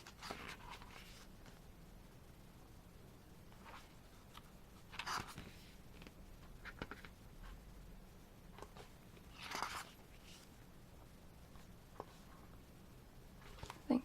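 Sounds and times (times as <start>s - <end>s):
paper rustling: 3.6s - 7.1s, 8.6s - 10.5s.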